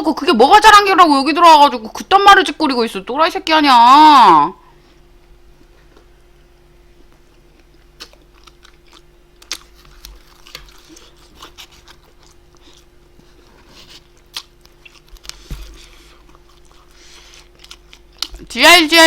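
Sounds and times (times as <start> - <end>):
faint steady hum: 0.0 - 19.0
person chewing food: 7.0 - 18.5
food crunching: 7.1 - 18.5.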